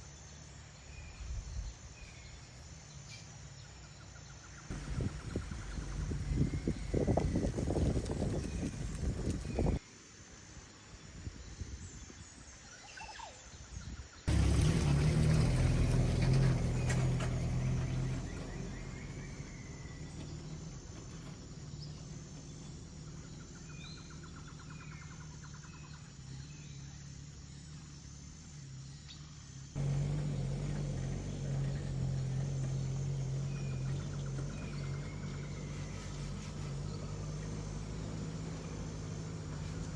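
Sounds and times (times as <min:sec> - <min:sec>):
car engine humming: 0:04.7 - 0:09.8, 0:14.3 - 0:24.4, 0:26.4 - 0:39.9.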